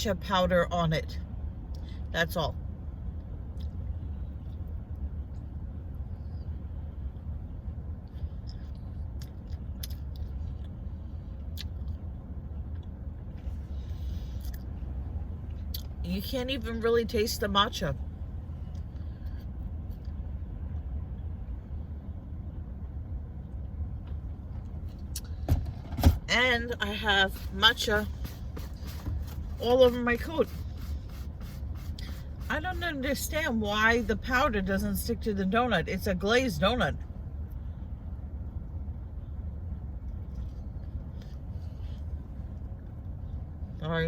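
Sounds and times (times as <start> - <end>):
car cabin rumble: 22.6 - 37.6.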